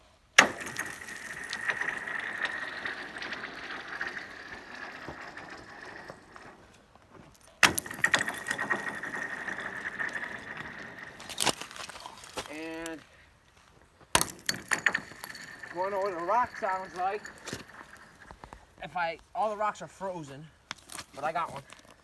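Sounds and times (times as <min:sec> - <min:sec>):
ice chunk cracking onto ice: 0:00.4 - 0:03.2, 0:07.6 - 0:13.0
ice ringing high tone: 0:00.4 - 0:06.4, 0:07.6 - 0:11.9, 0:14.2 - 0:18.4.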